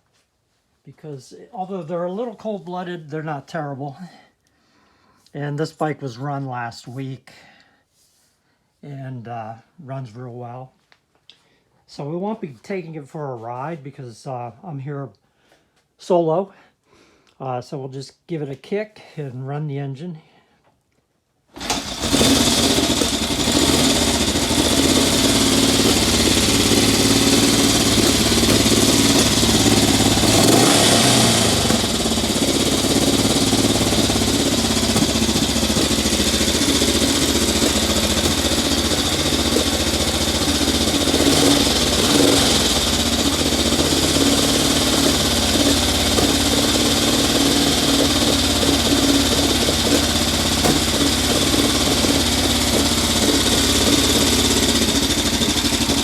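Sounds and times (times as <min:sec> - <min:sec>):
motorcycle engine idling: 0:21.6 - 0:56.0.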